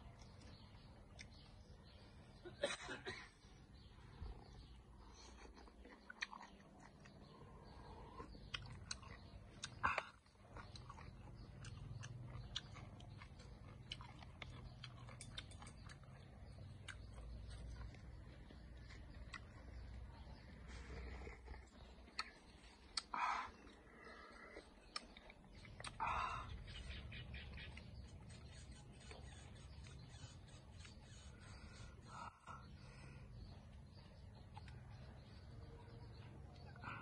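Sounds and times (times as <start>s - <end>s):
chewing and mouth sounds: 4.3s - 31.2s.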